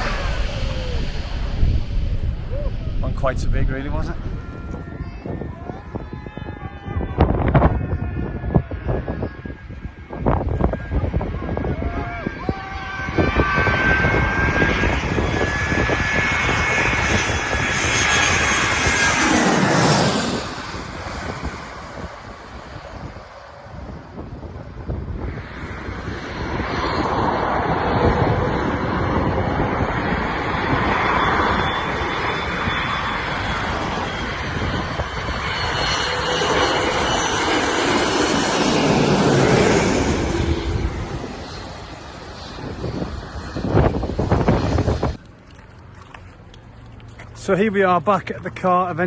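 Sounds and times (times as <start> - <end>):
faint high whine: 0.0 - 5.0
wind buffeting microphone: 0.0 - 48.4
jet airliner engine roar: 0.0 - 49.0.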